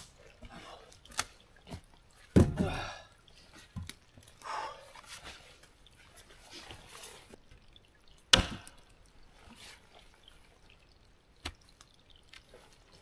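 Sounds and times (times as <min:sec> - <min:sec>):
sharp knocks of building pieces: 0:02.3 - 0:02.8, 0:08.3 - 0:08.7.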